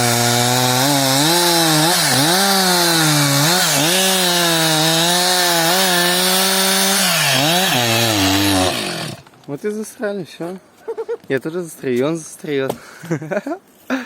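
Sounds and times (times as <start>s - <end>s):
chainsaw cutting wood: 0.0s - 9.3s.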